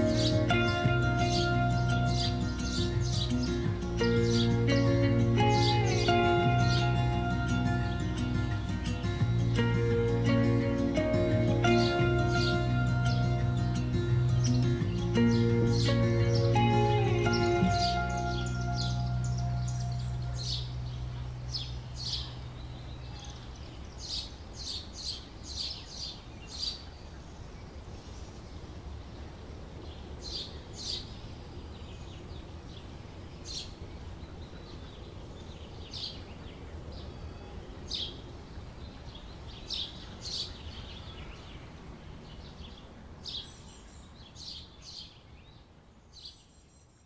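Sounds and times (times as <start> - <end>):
low outdoor rumble: 0.0 - 24.0
small birds chirping: 0.0 - 47.0.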